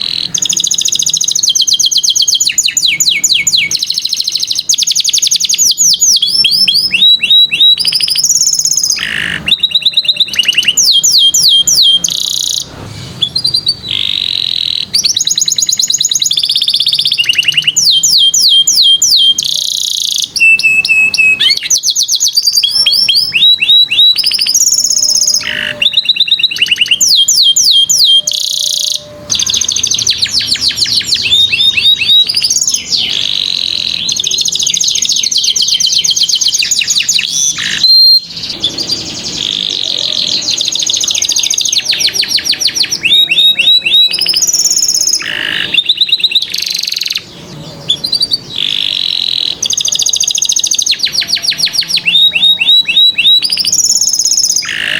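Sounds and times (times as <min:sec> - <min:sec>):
canary singing trills: 0:00.0 - 0:54.9.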